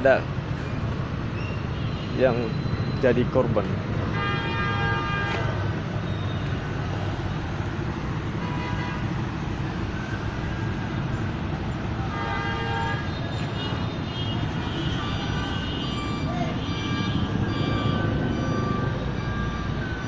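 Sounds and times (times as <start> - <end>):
road traffic: 0.0 - 20.0
vehicle horns honking: 4.1 - 6.4, 8.3 - 9.2, 12.0 - 18.5.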